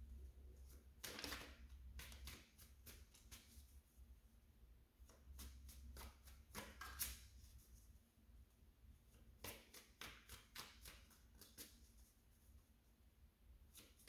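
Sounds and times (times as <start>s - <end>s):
cards flicking and tapping: 1.0s - 3.4s.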